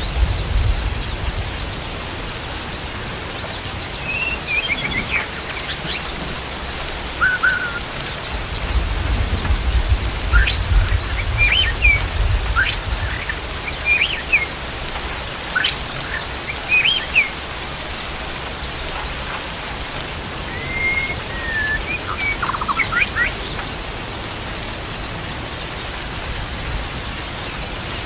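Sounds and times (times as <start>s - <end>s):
steady background hiss: 0.0s - 28.0s
bird whistling song: 3.4s - 17.5s, 20.5s - 23.9s.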